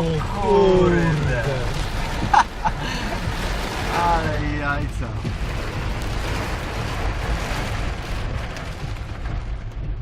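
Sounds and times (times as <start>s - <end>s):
heavy rain hiss: 0.0s - 9.7s
low thunder rumble: 3.1s - 10.0s.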